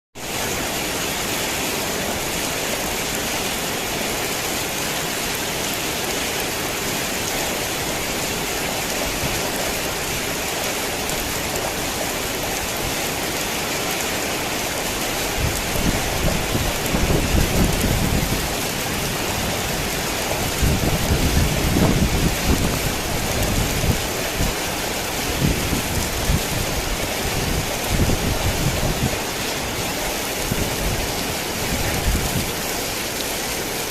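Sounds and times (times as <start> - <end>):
heavy rain falling: 0.2 - 33.9
rolling thunder rumbles: 15.4 - 24.6, 25.3 - 32.8.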